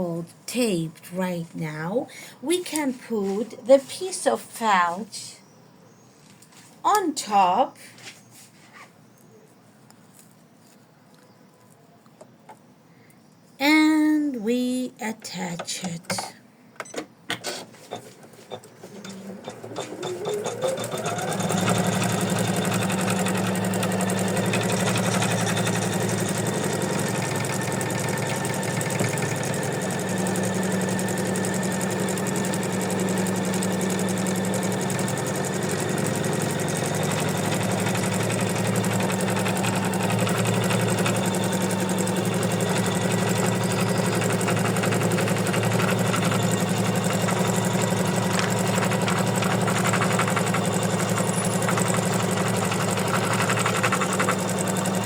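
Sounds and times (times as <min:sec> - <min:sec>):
embroidery machine stitching: 0:17.4 - 0:55.0.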